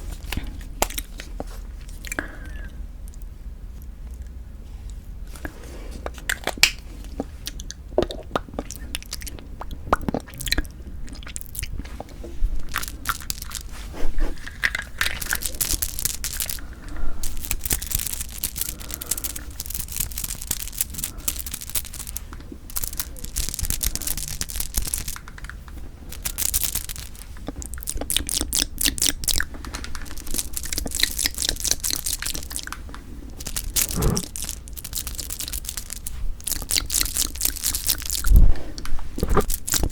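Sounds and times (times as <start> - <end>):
close-miked eating and chewing: 0.0 - 39.9
crisp crackly clicks: 0.2 - 2.2, 12.7 - 13.8, 14.4 - 39.9.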